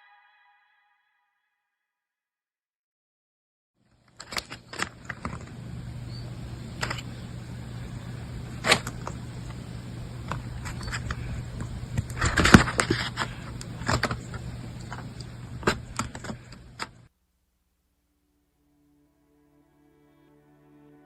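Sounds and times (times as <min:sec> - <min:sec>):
steady low hum: 0:03.8 - 0:17.8.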